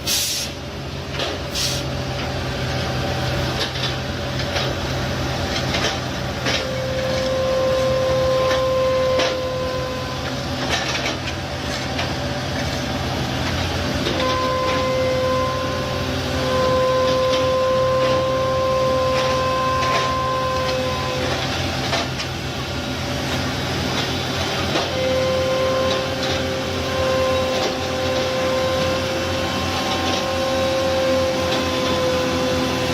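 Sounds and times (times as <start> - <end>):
heavy machinery engine hum: 0.0 - 32.9
clanks and knocks: 5.5 - 7.3, 10.2 - 12.8.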